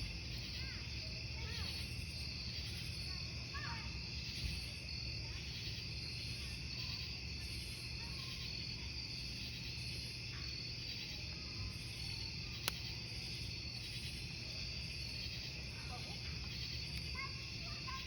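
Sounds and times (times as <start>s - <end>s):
crickets chirping: 0.0s - 18.0s
wood campfire burning: 0.0s - 18.0s
fire crackle pop: 11.9s - 15.7s, 16.4s - 17.2s.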